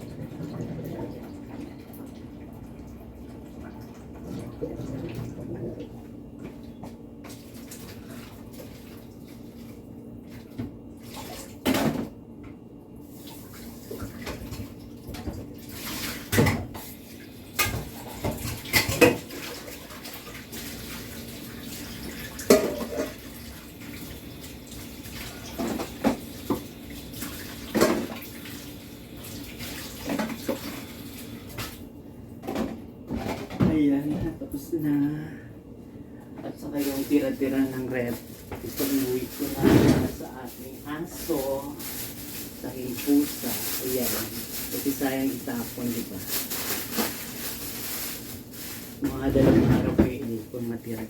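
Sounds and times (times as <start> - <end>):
water running from a tap: 13.2 - 31.6.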